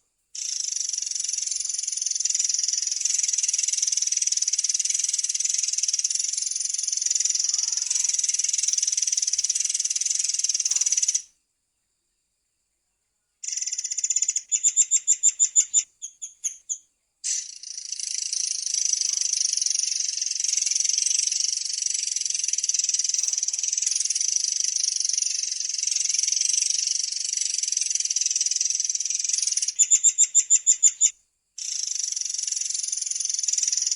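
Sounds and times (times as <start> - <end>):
bird singing high trills: 4.5 - 11.3, 13.5 - 26.7.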